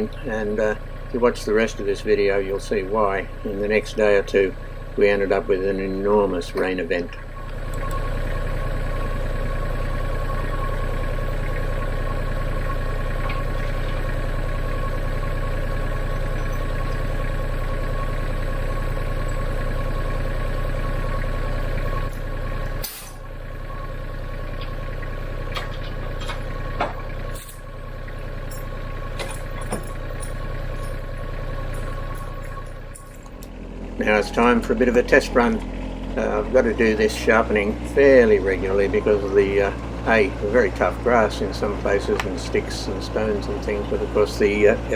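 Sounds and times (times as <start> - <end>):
diesel engine idling: 0.0 - 44.9
sharp clicks and knocks: 42.1 - 42.5.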